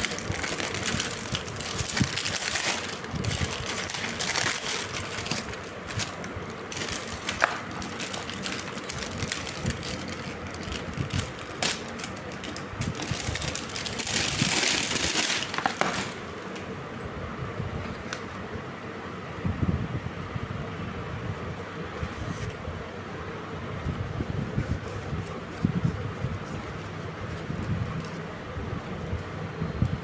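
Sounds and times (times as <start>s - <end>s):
plastic packaging rustling: 0.0s - 16.7s.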